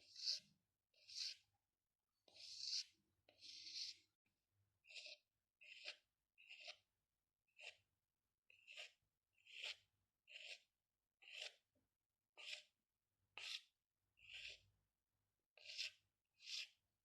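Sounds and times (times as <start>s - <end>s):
pencil strokes on paper: 0.0s - 1.5s, 2.2s - 4.1s, 4.8s - 6.9s, 7.5s - 7.8s, 8.5s - 11.6s, 12.4s - 12.7s, 15.6s - 16.8s.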